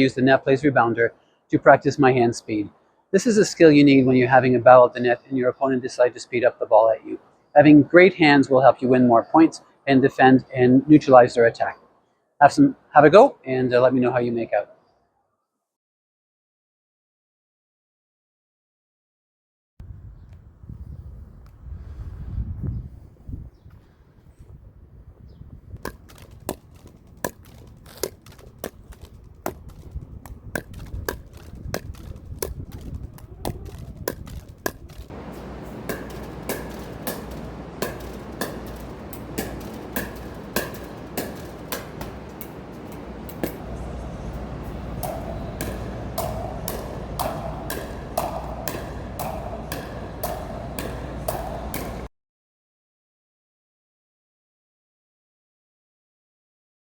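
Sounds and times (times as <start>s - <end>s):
paddle hitting ball against rebounder: 25.8s - 52.1s
steady background noise: 25.9s - 52.1s.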